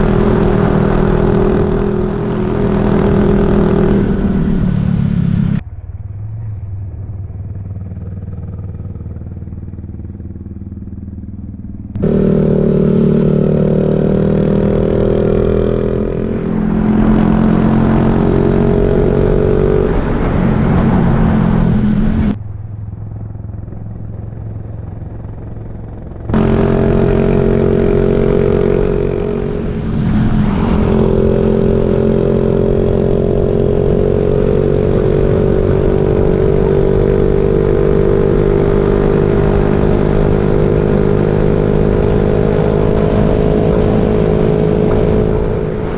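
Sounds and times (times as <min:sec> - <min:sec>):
motorcycle engine running: 0:00.0 - 0:05.6, 0:06.4 - 0:45.9
wind rush: 0:12.0 - 0:22.4, 0:26.3 - 0:45.9.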